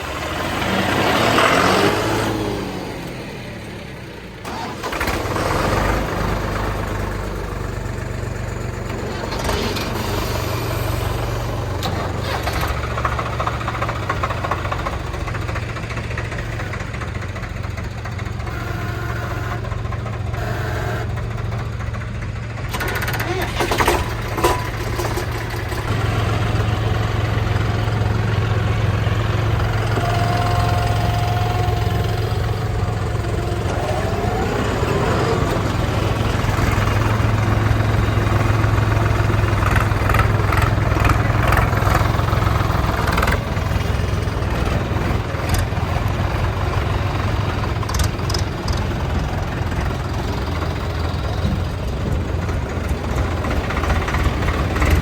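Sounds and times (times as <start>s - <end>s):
tractor engine humming: 0.0s - 55.0s.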